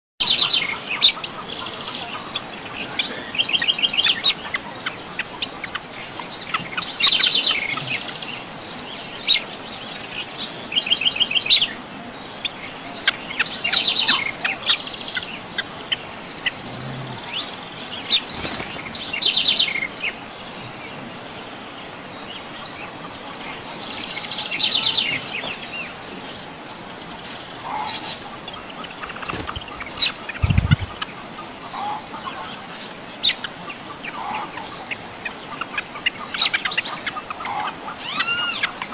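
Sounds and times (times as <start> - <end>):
songbirds chirping and singing: 0.2 - 38.9
rapid bird trill: 27.7 - 32.1.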